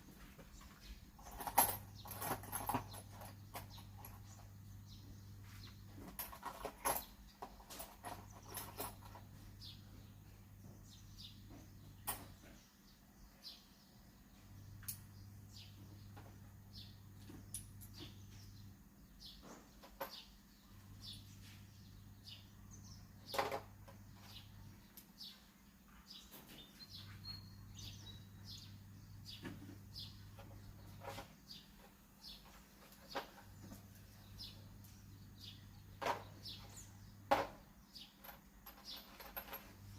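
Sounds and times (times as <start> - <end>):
faint bird chirps: 24.1 - 37.2.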